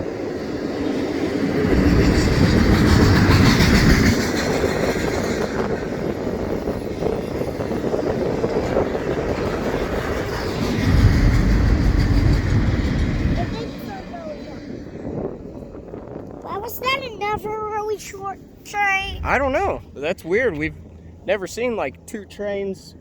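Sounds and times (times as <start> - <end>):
freight train rolling past: 0.0 - 23.0
wheels clacking over rail joints: 0.1 - 15.0.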